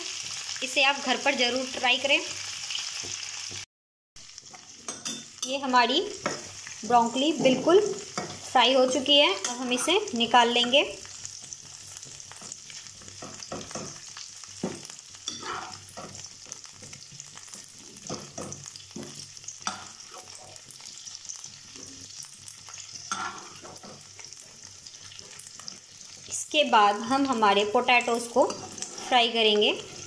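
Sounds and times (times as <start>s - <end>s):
vegetables sizzling in hot oil: 0.0s - 30.0s
steel spoon scraping pan: 7.2s - 10.8s, 15.2s - 16.3s, 22.9s - 24.2s, 28.3s - 30.0s.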